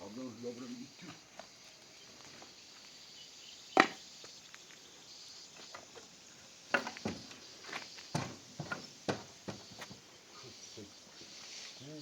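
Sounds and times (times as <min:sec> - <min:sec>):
small knocks and clatters: 0:06.7 - 0:10.0.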